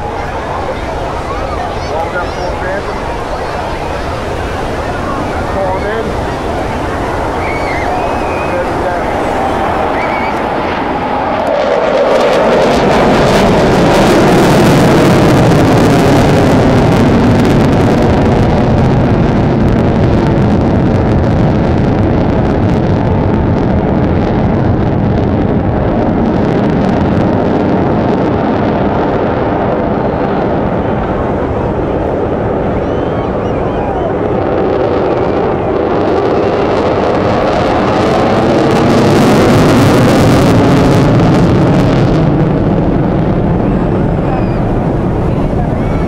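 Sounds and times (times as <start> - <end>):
jet fighter roaring past: 0.0 - 46.0.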